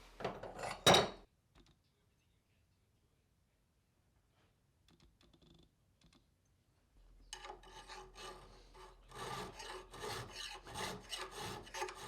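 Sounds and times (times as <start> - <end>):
file scraping on steel: 7.3 - 12.0.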